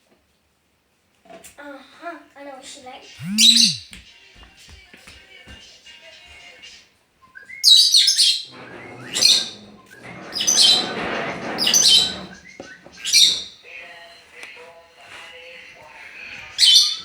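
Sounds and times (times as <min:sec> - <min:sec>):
bird shrill high calls: 0:03.2 - 0:03.9.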